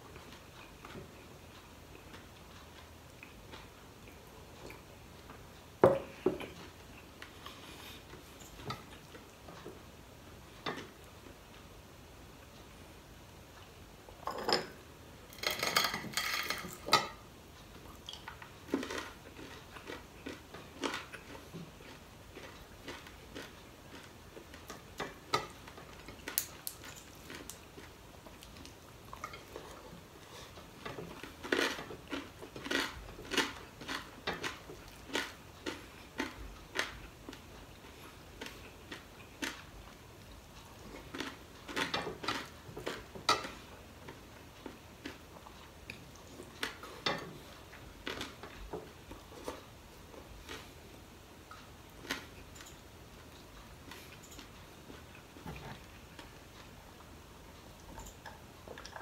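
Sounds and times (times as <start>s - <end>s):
person chewing and smacking: 0.1s - 5.4s, 17.7s - 50.8s, 51.5s - 59.0s.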